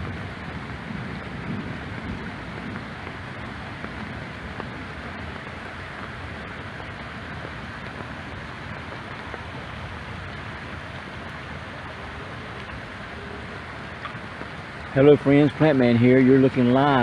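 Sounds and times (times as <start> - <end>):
babbling brook flowing: 4.5 - 17.0.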